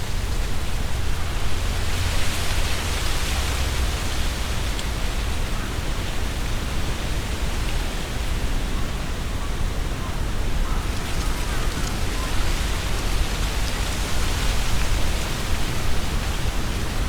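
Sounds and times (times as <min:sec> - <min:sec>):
wind gusting through trees: 0:00.0 - 0:17.0
leaves rustling: 0:10.7 - 0:17.0.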